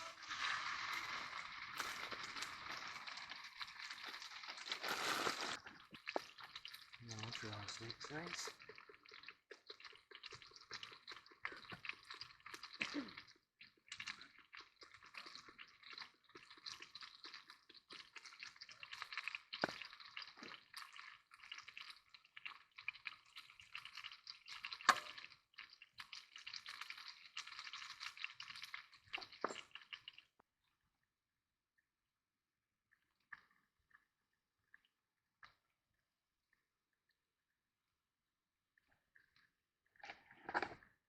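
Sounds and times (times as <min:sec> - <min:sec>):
steak sizzling in a pan: 0:00.0 - 0:06.8.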